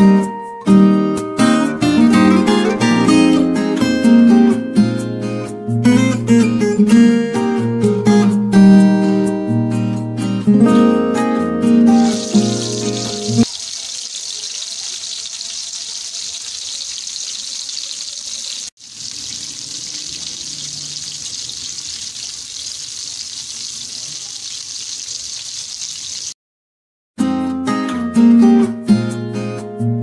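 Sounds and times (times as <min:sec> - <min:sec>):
meat sizzling in hot oil: 0:12.0 - 0:26.4.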